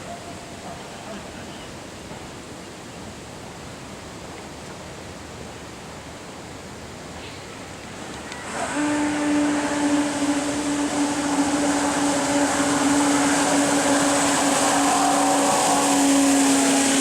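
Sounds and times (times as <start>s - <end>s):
water jet rushing hiss: 5.2s - 17.0s
electric motor whine: 8.4s - 17.0s.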